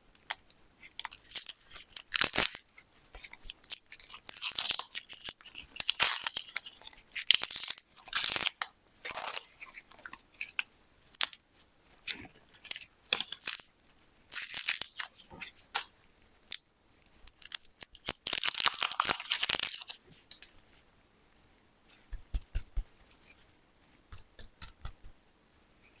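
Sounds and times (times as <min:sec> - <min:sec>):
plastic wrappers crinkling: 0:00.2 - 0:10.6, 0:14.3 - 0:15.9, 0:17.3 - 0:20.3.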